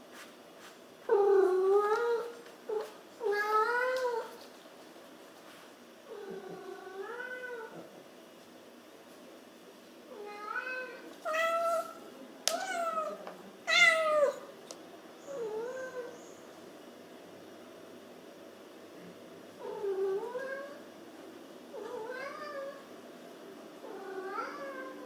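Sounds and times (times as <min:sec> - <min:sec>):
cat meowing: 0:10.2 - 0:14.4.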